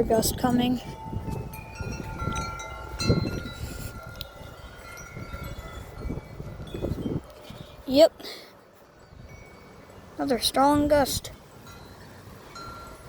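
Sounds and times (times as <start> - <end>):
wind rumble on microphone: 0.0 - 8.0, 9.0 - 9.6
wind chimes ringing: 0.0 - 8.3, 8.9 - 10.8, 11.4 - 13.0.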